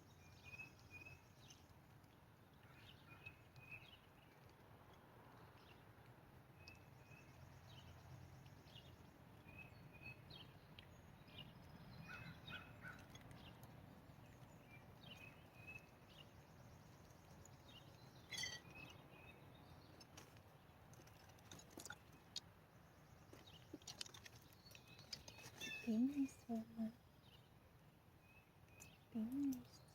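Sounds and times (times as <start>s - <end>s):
bird chirps and calls: 11.3s - 13.6s, 17.4s - 19.8s.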